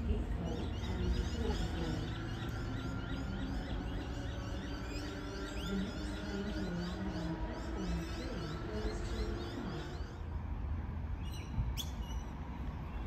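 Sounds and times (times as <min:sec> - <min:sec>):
bird chirping high: 0:00.4 - 0:10.2.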